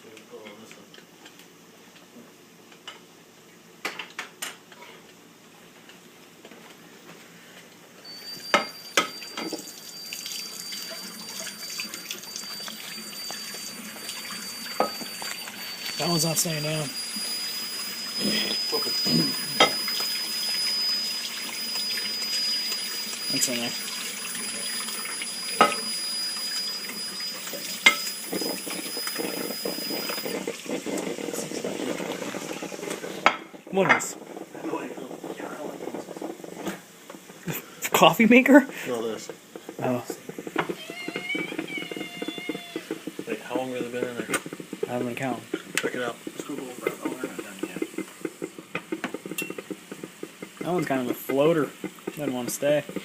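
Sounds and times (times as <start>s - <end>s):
tap water running into sink: 8.4s - 33.8s, 39.6s - 53.0s.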